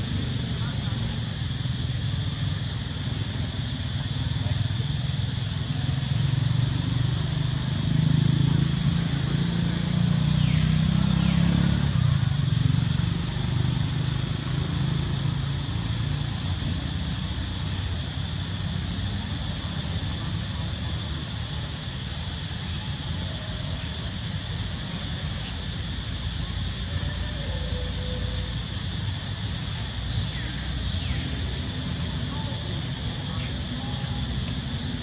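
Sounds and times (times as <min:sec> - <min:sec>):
steady high hiss: 0:00.0 - 0:35.0
passing vehicle engine hum: 0:06.7 - 0:23.3.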